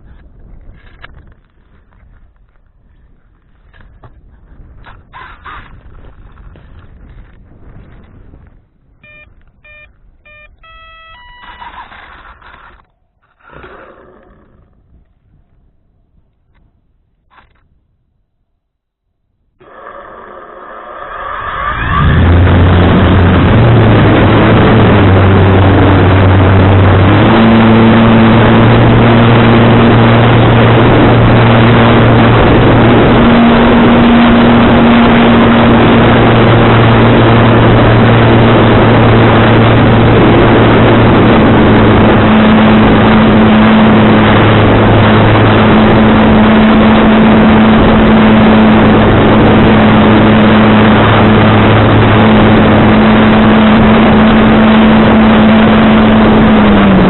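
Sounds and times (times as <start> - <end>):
wind rush: 0.0 - 10.3, 19.6 - 57.0
model aircraft motor droning: 24.0 - 56.8.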